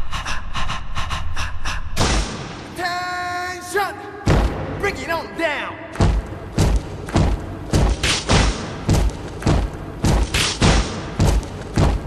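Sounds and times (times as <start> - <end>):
heavy kick drum: 6.0 - 12.0.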